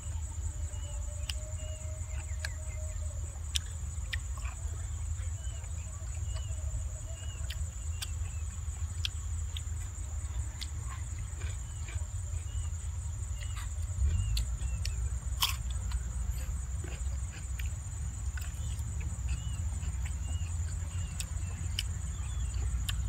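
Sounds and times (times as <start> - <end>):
chewing and crunching food: 0.0 - 23.0
high insect drone: 0.0 - 23.0
wind rumble on microphone: 12.2 - 17.2.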